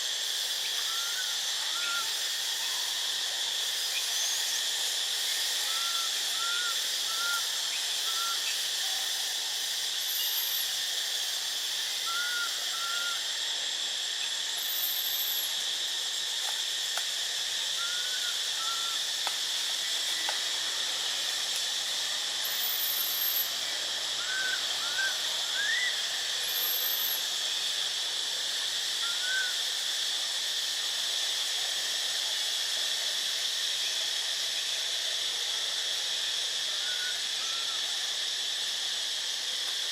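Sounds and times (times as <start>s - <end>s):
high-pitched insect drone: 0.0s - 39.9s
faint whistled sweeps: 17.8s - 19.0s.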